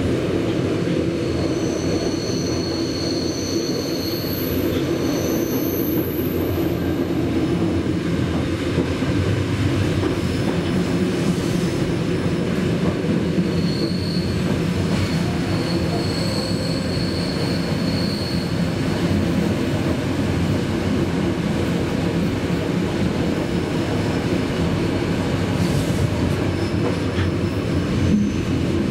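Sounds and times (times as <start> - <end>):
train wheels rumbling on rails: 0.0 - 28.9
high wheel squeal: 1.2 - 6.5, 13.4 - 18.8.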